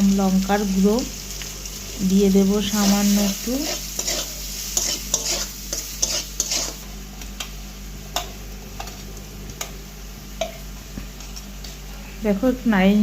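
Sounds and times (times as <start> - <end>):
onions frying in oil: 0.0 - 13.0
spatula scraping and clicking on pan: 3.6 - 9.0.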